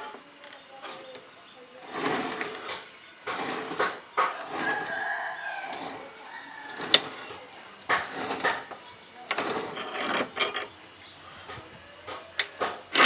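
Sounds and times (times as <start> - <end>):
rooster crowing: 4.3 - 7.5.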